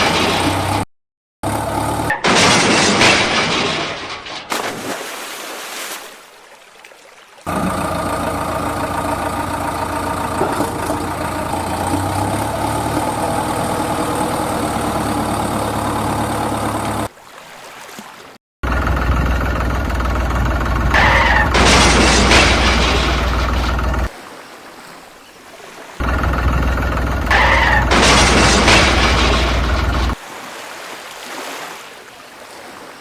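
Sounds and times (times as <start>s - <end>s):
engine idling: 7.5s - 17.1s, 18.6s - 24.1s, 26.0s - 30.2s
engine with deep hum: 7.5s - 17.1s, 18.6s - 24.1s.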